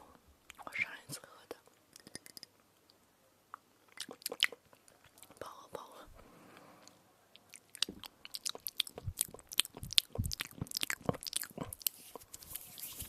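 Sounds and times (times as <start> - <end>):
crunching and chewing: 3.9 - 5.4, 6.8 - 13.0.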